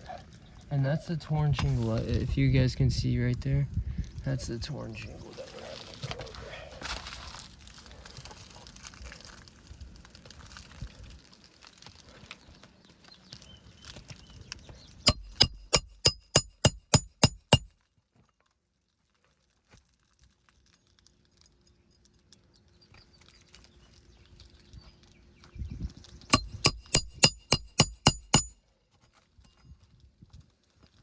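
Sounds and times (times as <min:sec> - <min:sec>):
tapping and scraping on shingles: 0:05.8 - 0:17.7, 0:26.2 - 0:29.4
hammer striking nail: 0:15.1 - 0:17.7, 0:26.3 - 0:28.6.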